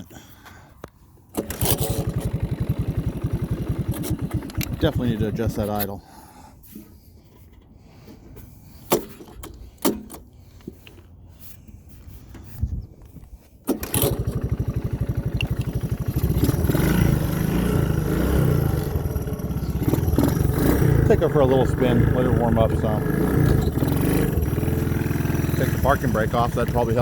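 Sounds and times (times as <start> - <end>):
single-cylinder engine idling: 1.3 - 5.8, 13.7 - 27.0
engine knocks: 13.8 - 27.0.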